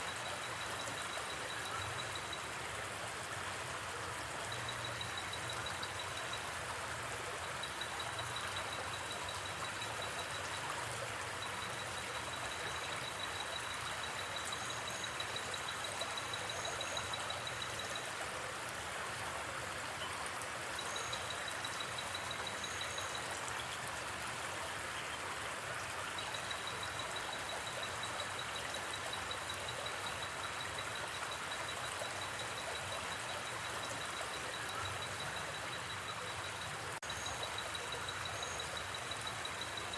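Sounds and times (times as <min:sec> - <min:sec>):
insect trill: 0:00.0 - 0:02.5, 0:07.2 - 0:18.1, 0:20.8 - 0:23.4, 0:26.2 - 0:39.9
river flowing: 0:00.0 - 0:39.9.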